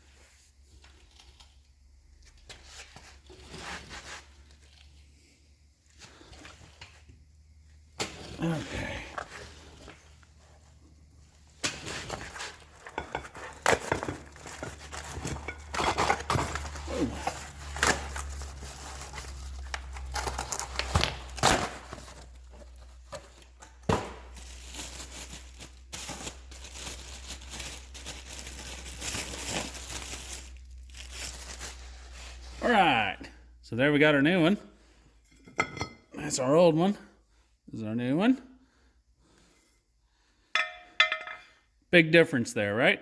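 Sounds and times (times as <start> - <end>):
packaging crinkling and tearing: 13.4 - 23.0, 23.9 - 32.4
knocks and clinks: 40.6 - 41.6.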